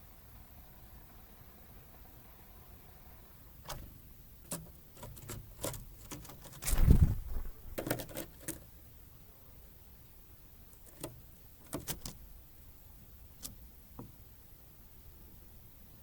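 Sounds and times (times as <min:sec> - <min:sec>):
beaks and claws tapping feeder: 0:03.7 - 0:08.7, 0:10.8 - 0:12.3
deep thump: 0:06.6 - 0:07.8.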